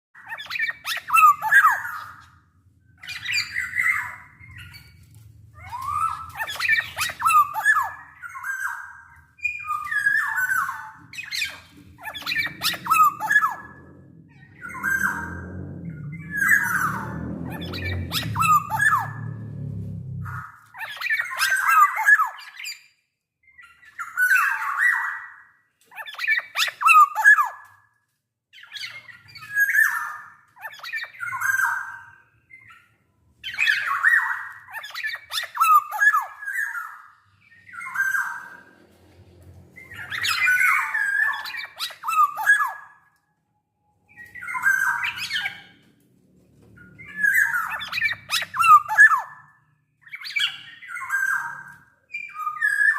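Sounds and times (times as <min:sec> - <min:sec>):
low hum: 0:11.0 - 0:20.8.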